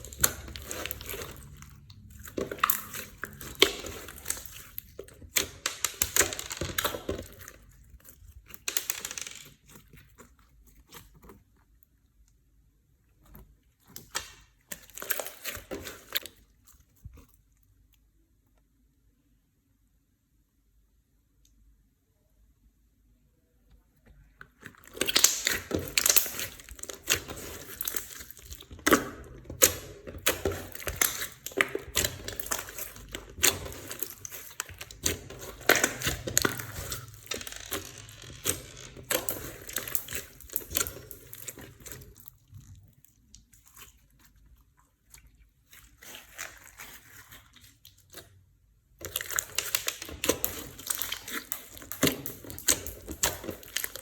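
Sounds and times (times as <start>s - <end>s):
slime crackling and popping: 0.0s - 11.0s, 13.8s - 16.4s, 24.6s - 44.0s, 45.7s - 54.0s.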